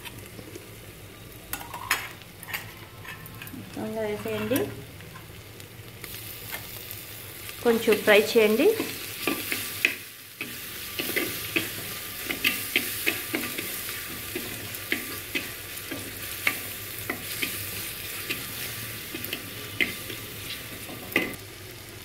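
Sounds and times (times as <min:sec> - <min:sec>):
paste sizzling in hot oil: 0:04.8 - 0:22.0.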